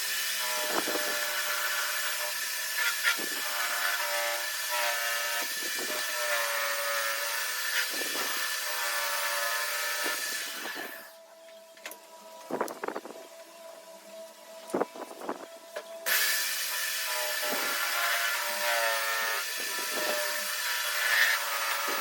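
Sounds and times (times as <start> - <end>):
power tool whining against metal: 0.0 - 11.2, 14.6 - 22.0.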